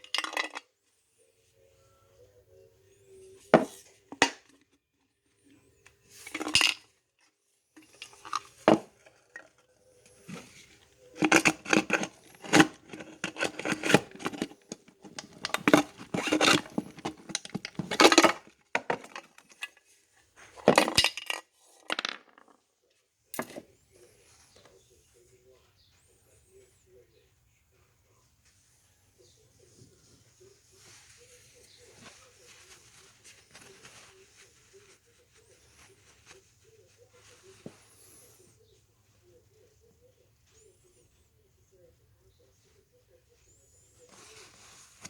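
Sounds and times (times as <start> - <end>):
metal parts knocking: 11.2 - 19.8.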